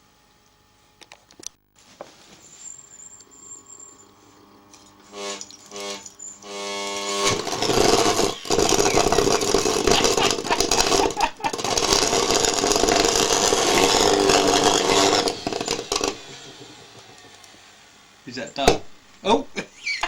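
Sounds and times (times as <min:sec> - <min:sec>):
vacuum cleaner motor running: 0:02.3 - 0:20.0.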